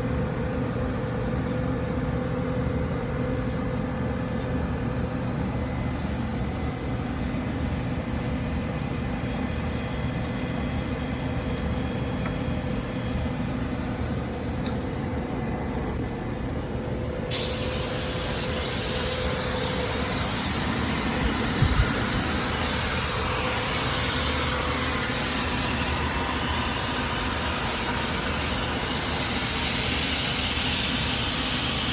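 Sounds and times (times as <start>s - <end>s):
coolant pump humming: 0.0s - 31.9s
high hiss with rising whine: 12.7s - 31.9s.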